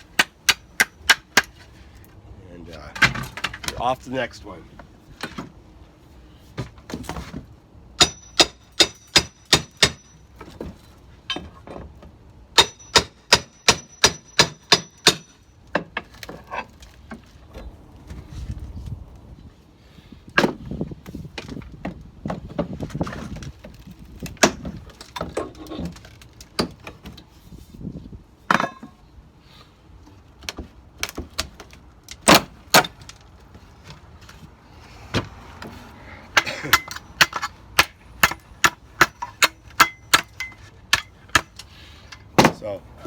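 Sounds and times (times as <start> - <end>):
knocking and prying wood: 0.1 - 1.6, 6.6 - 11.9, 12.6 - 16.5, 20.4 - 26.0, 30.4 - 33.2, 35.1 - 41.6, 42.2 - 42.7.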